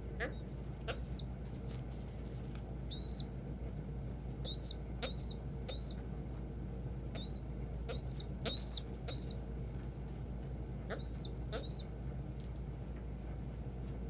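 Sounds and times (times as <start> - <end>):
steady low hum: 0.0 - 14.0
bird high chirps: 0.2 - 1.3, 2.9 - 3.3, 4.4 - 6.0, 7.1 - 9.4, 10.9 - 11.9.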